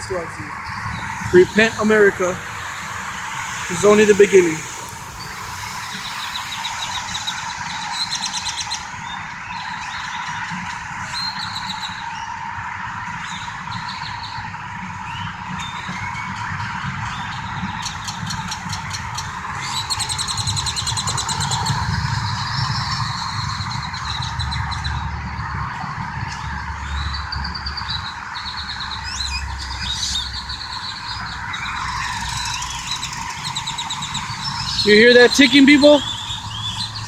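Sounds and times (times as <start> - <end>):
birds chirping and trilling: 0.0 - 12.4, 26.8 - 37.0
vehicle engines and traffic rumble: 0.0 - 37.0.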